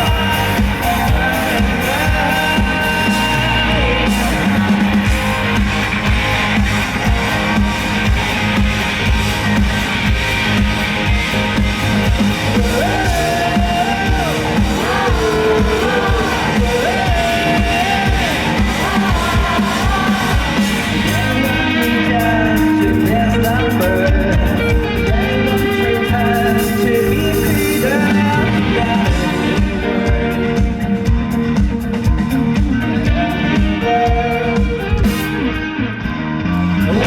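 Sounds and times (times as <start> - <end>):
person singing: 0.0 - 5.3, 12.6 - 31.2, 32.8 - 35.2
live rock band playing: 0.0 - 37.0.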